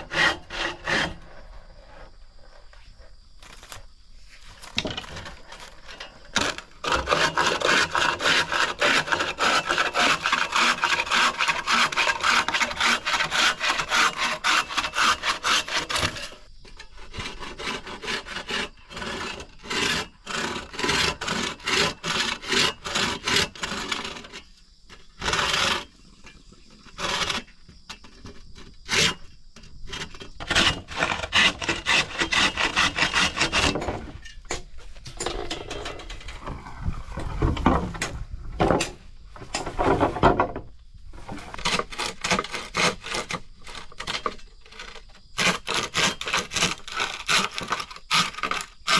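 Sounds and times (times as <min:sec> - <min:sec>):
handsaw cutting wood: 0:00.0 - 0:01.4, 0:06.3 - 0:16.4, 0:17.0 - 0:24.4, 0:25.2 - 0:25.9, 0:26.9 - 0:27.5, 0:30.4 - 0:34.1, 0:41.2 - 0:48.9.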